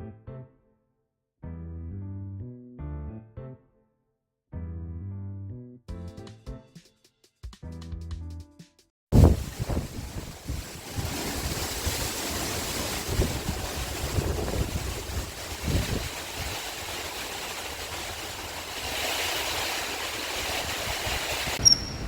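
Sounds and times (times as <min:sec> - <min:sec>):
steady rushing noise: 0:09.2 - 0:19.0
short high chirp: 0:21.6 - 0:22.0.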